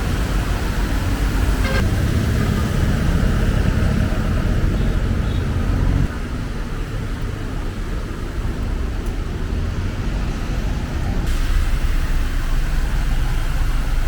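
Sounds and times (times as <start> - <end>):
rumble of passing vehicles: 0.0 - 14.0
tyres rushing through water: 0.0 - 14.0.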